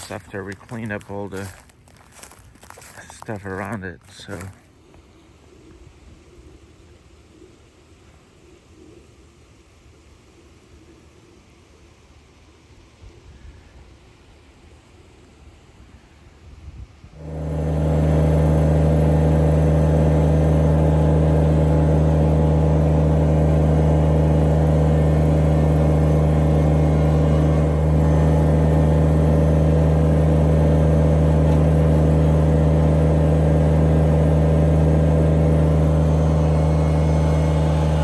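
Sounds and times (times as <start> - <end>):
engine running: 0.0 - 5.1, 17.2 - 38.0.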